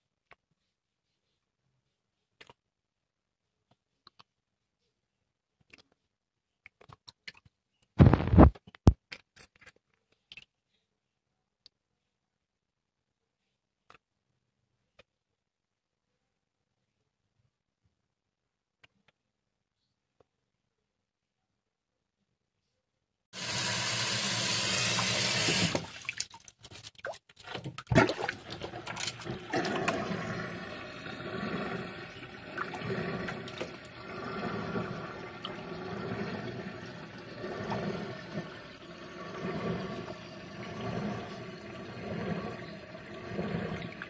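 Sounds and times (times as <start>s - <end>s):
water gushing from a tap: 23.4s - 26.5s, 27.4s - 44.0s
water running and sloshing: 23.4s - 44.0s
knocks and splashes: 25.4s - 38.5s.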